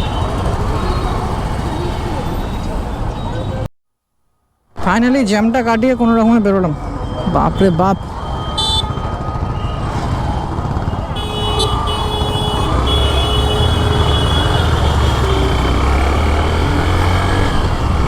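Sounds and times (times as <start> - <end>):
motorcycle engine and road rumble: 0.0 - 3.6, 6.8 - 18.0
vehicle horns: 7.4 - 9.2, 10.9 - 17.6.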